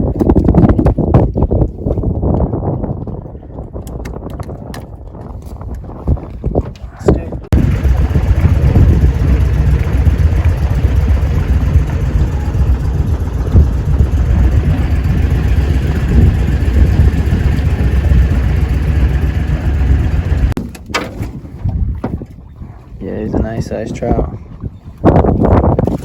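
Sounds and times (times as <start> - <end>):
boat motor running: 7.5 - 20.6.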